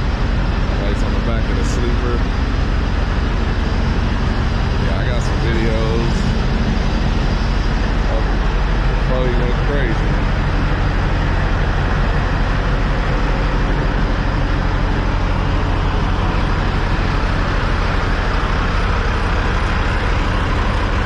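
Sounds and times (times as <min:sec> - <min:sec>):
truck engine rumble: 0:00.0 - 0:21.0.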